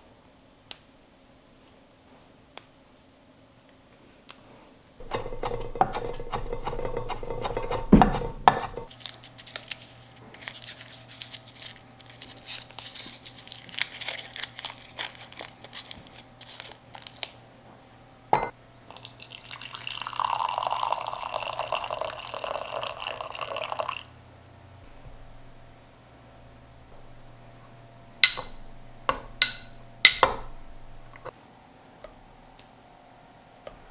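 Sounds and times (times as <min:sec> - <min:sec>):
water running: 0:05.0 - 0:08.9, 0:18.9 - 0:24.3.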